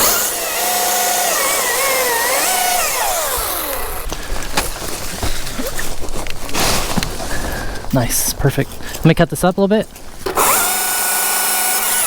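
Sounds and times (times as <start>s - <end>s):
chainsaw cutting: 0.0s - 5.7s, 10.2s - 12.0s.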